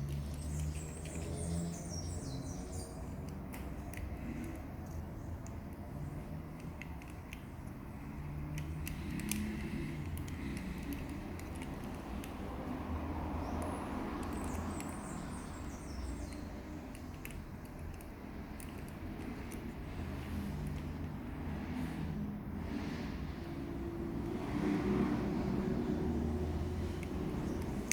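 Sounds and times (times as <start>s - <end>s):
small clicks and creaks: 0.0s - 1.7s, 3.0s - 12.7s, 13.4s - 21.2s, 26.7s - 27.9s.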